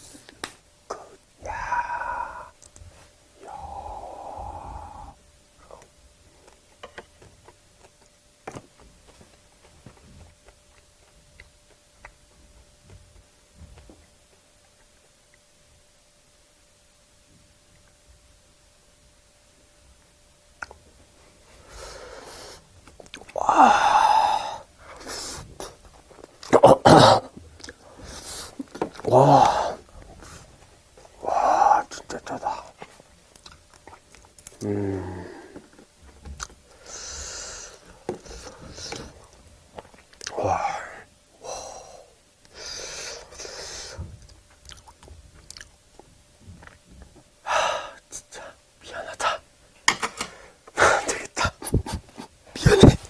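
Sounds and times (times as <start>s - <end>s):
man sighing: 1.4s - 2.6s, 3.4s - 5.2s, 23.3s - 24.7s, 29.0s - 29.9s, 34.6s - 35.7s
breathy exhalations: 1.4s - 5.8s, 23.4s - 25.8s, 27.8s - 30.5s, 34.6s - 35.8s
soft breath: 1.4s - 5.8s
chewing clicks: 33.3s - 34.6s, 44.6s - 45.7s.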